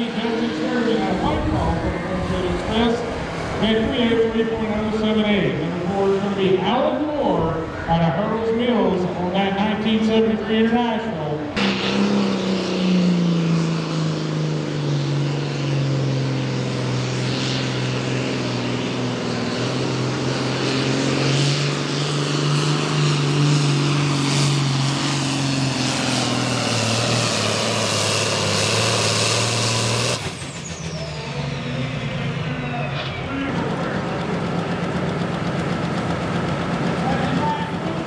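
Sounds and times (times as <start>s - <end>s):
diesel tractor engine under load: 11.3s - 38.0s.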